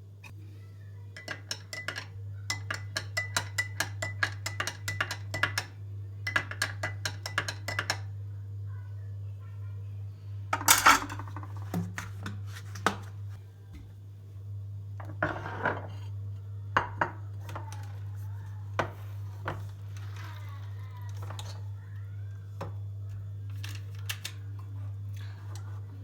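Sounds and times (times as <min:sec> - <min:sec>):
dishes and cutlery clinking: 0:01.2 - 0:05.7, 0:06.3 - 0:08.1, 0:10.6 - 0:13.0.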